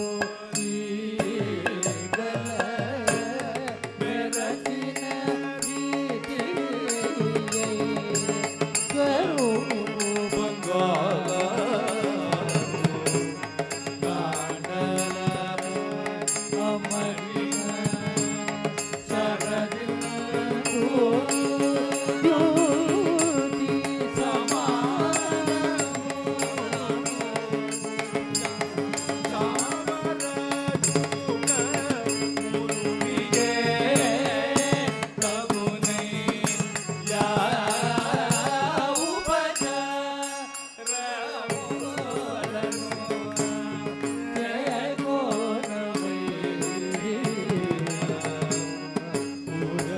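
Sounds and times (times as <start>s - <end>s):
percussion beat: 0.0s - 49.9s.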